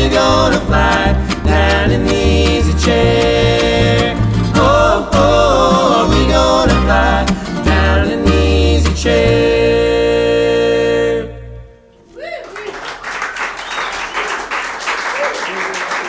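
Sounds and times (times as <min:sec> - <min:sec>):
acoustic bluegrass band playing: 0:00.0 - 0:11.5.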